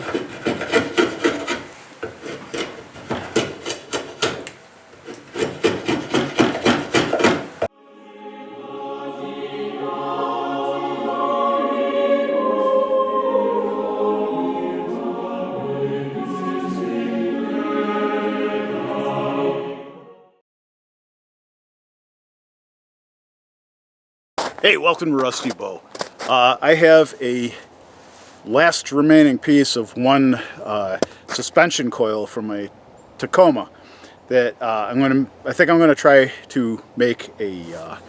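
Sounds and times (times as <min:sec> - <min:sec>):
rapid rhythmic rasping strokes: 0:00.0 - 0:07.7
choir singing: 0:07.6 - 0:20.4.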